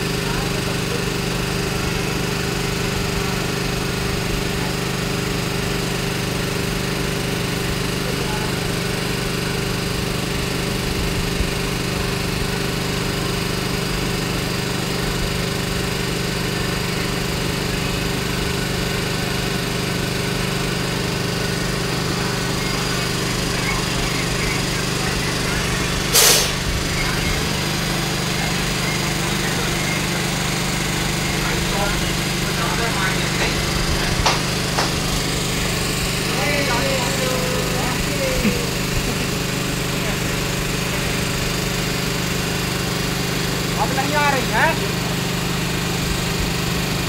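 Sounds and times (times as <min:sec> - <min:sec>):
brief loud burst: 0:26.1 - 0:26.6.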